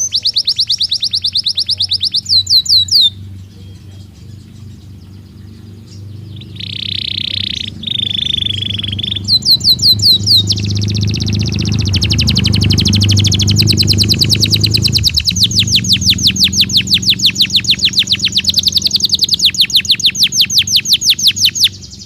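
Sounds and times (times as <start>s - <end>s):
canary singing fast trill: 0.0s - 22.0s
steady low hum: 0.0s - 22.0s.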